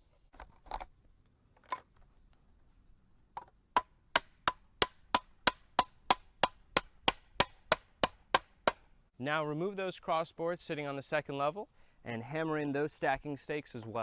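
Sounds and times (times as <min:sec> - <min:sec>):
hammer driving stakes into ground: 0:03.4 - 0:08.9.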